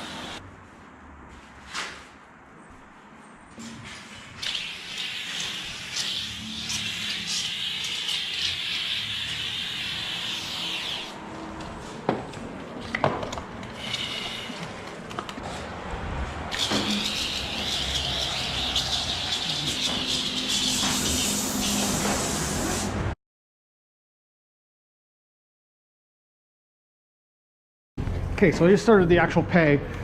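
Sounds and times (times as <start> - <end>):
foam sprayer hissing: 0.0 - 0.4, 4.4 - 11.2, 13.8 - 14.8, 16.5 - 23.1.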